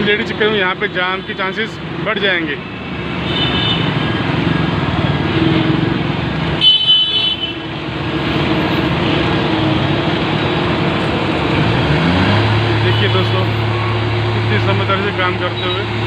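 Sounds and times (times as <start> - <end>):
road traffic engines: 0.0 - 16.0
vehicle horn honking: 2.8 - 4.3, 6.6 - 7.7.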